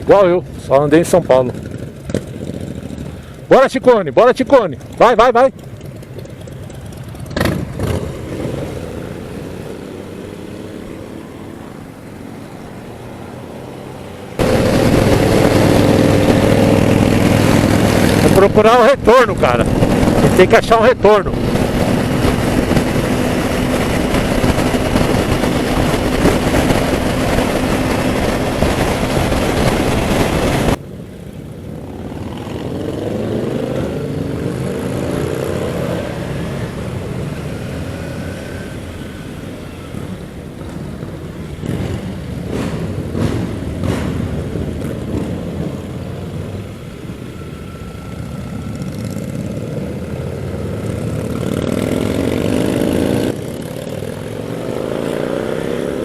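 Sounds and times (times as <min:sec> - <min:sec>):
motorcycle engine drone: 0:00.0 - 0:56.0
vehicles passing: 0:00.0 - 0:56.0
wind noise: 0:14.3 - 0:30.9.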